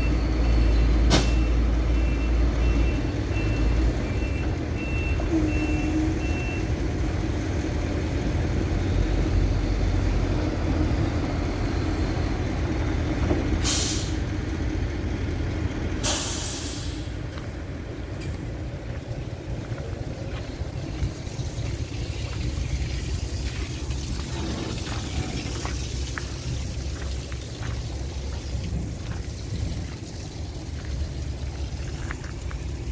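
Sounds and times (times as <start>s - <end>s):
reversing beeps: 0.0s - 6.7s
diesel truck engine running: 0.0s - 32.9s
air brake hiss: 13.6s - 14.2s, 16.0s - 17.2s.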